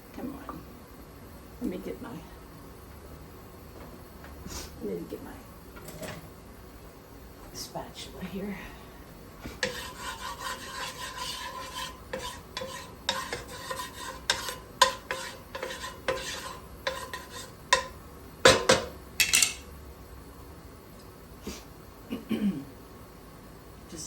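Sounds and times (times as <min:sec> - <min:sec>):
spatula scraping metal pan: 0:09.6 - 0:18.0.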